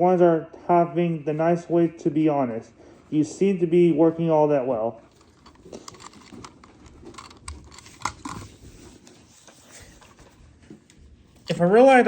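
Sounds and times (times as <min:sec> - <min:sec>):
handling clicks and rustles: 0:05.1 - 0:11.7.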